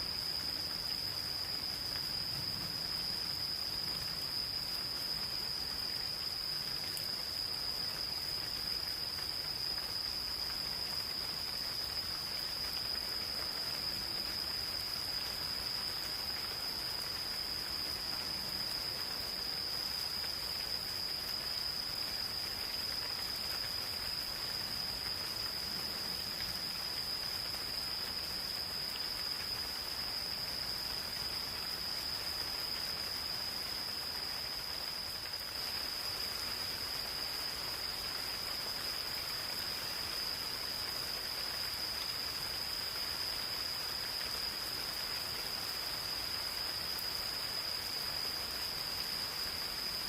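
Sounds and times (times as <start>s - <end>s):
insects trilling: 0.0s - 50.0s
rain falling on forest: 0.0s - 50.0s.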